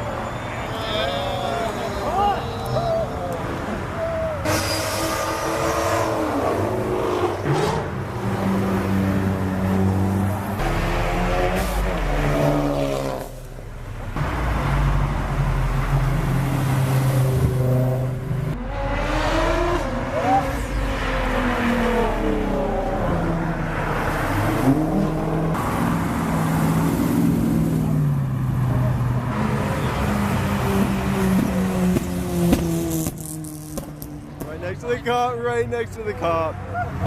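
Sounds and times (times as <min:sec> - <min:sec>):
car engines revving pulling away: 0:00.0 - 0:35.0.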